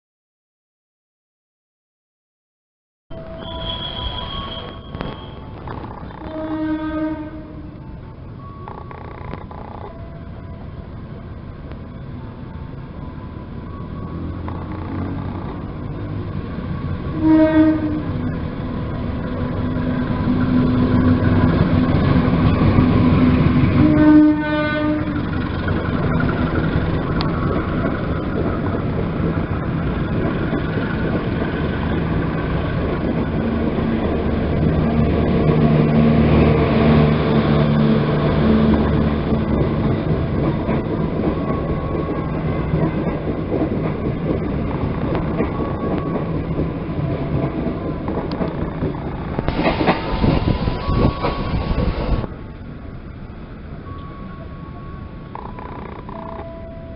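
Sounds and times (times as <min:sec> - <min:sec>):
train wheels rumbling: 0:03.2 - 0:56.9
train horn blasts: 0:06.1 - 0:07.8, 0:17.1 - 0:18.2, 0:23.7 - 0:25.3.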